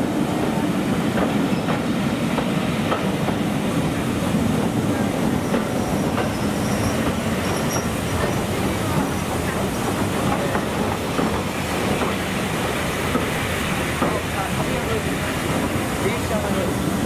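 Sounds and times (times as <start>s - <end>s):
train rumbling past: 0.0s - 17.0s
faint high wheel squeal: 5.4s - 8.5s.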